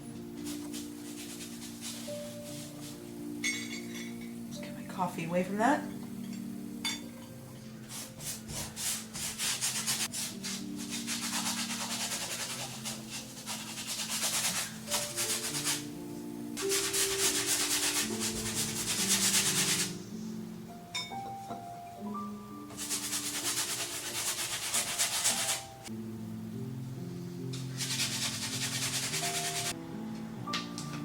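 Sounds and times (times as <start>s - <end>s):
soft background music: 0.0s - 31.0s
paintbrush scrubbing on canvas: 0.4s - 3.0s, 7.9s - 15.9s, 16.6s - 20.0s, 22.8s - 25.7s, 27.8s - 29.7s.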